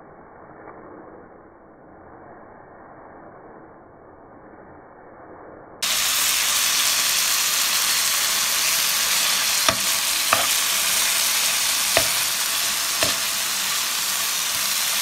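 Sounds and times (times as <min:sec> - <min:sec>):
meat sizzling in a frying pan: 0:05.8 - 0:15.0
spoon knocking against pan: 0:09.6 - 0:13.6.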